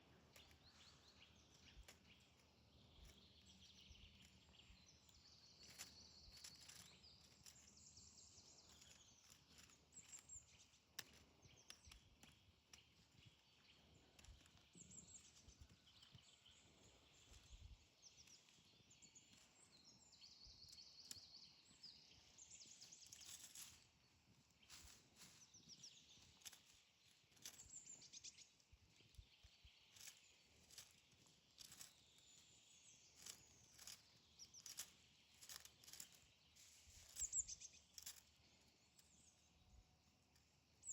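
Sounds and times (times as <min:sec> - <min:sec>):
songbirds chirping: 0:00.0 - 0:40.9
soft clicks or rustles: 0:05.0 - 0:08.0, 0:33.1 - 0:39.2.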